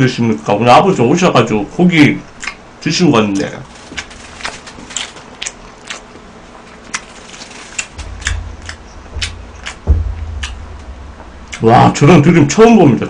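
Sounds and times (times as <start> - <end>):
wet chewing mouth clicks: 2.4 - 2.6, 4.0 - 8.0
low rumble: 7.4 - 12.9
thud: 7.8 - 12.6.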